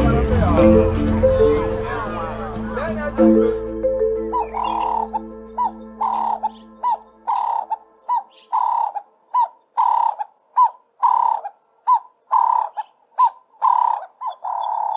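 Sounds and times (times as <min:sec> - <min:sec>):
bird calling: 0:04.4 - 0:14.9.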